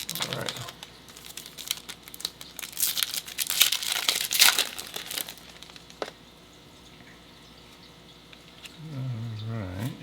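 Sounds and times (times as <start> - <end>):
wrapper crinkling and tearing: 0.0 - 6.1.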